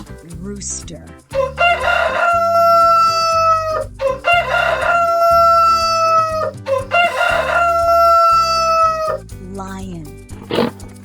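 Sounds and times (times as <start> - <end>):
rooster crowing: 1.3 - 9.2.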